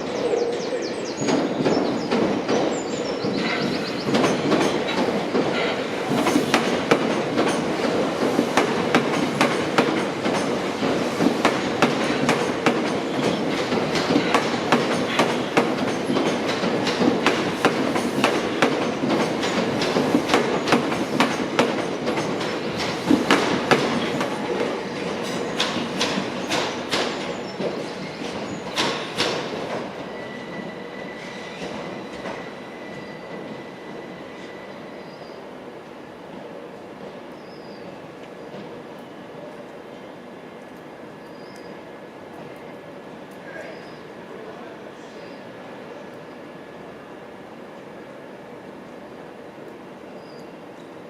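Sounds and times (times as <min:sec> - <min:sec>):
train rumbling hum: 0:00.0 - 0:51.0
train wheels clicking over joints: 0:01.1 - 0:30.2.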